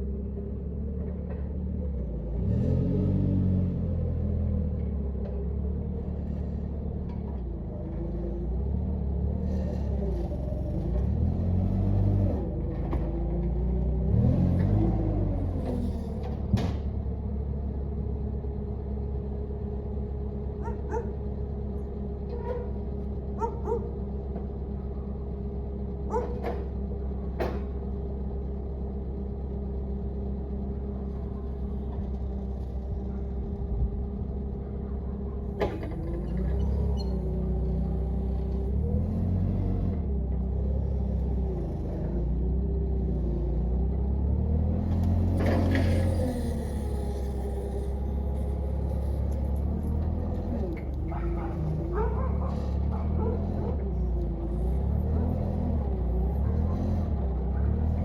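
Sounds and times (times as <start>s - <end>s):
machine engine running: 45.2s - 58.0s.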